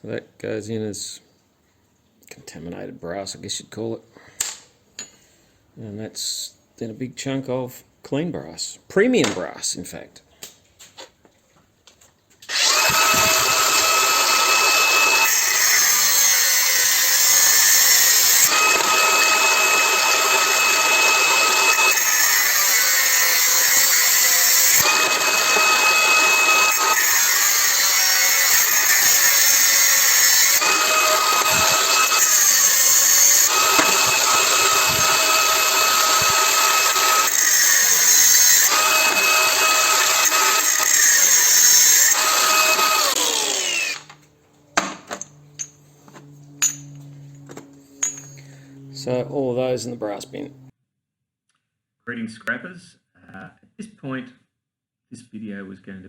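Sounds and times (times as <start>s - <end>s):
power tool whining on metal: 12.4s - 50.7s.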